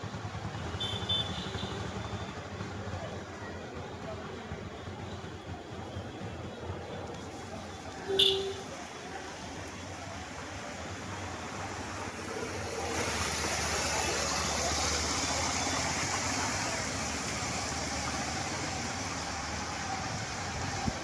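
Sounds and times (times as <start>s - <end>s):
floodwater rushing and splashing: 6.4s - 21.0s.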